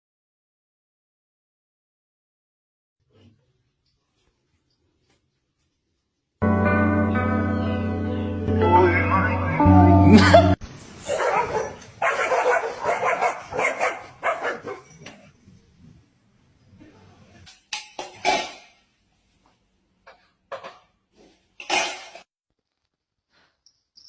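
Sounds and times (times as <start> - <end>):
music: 6.4 - 10.6
dog barking: 11.0 - 15.0.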